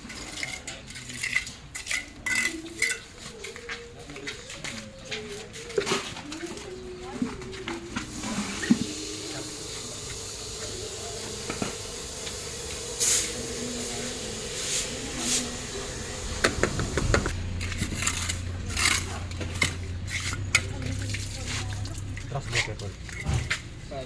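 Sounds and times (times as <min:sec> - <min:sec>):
hand tools clinking and scraping: 0:00.0 - 0:23.9
hissy sweeps: 0:07.8 - 0:17.4.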